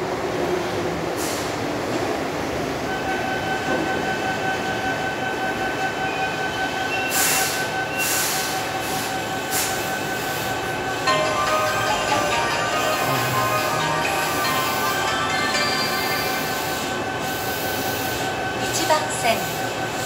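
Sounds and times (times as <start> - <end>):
high brake squeal: 5.9 - 10.6
station chime melody: 11.0 - 17.8.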